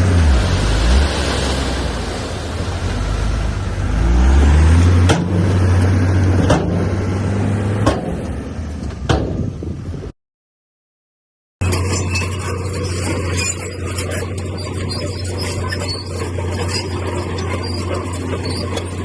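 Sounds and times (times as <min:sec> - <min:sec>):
diesel earthmover engine revving: 0:00.0 - 0:08.9
sharp metallic knocks: 0:05.0 - 0:07.0, 0:07.8 - 0:09.5.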